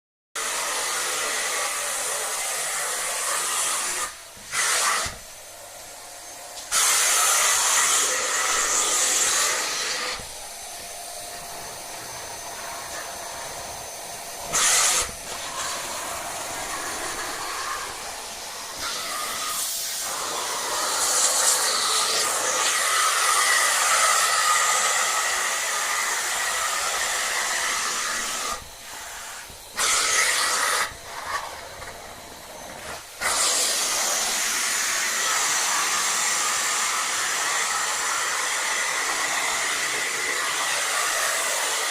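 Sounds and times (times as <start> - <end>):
vacuum cleaner running: 0.4 - 41.9.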